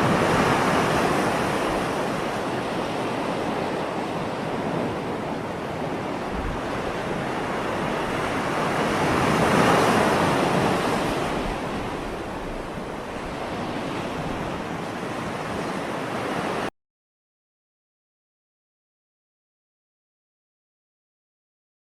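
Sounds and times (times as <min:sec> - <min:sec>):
ocean waves washing: 0:00.0 - 0:16.7.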